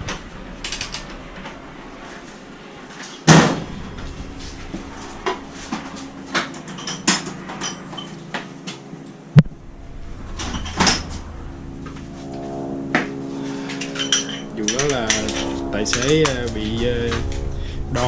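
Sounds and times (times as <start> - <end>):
metal tools knocking and clanking: 6.3 - 8.1, 13.8 - 16.3.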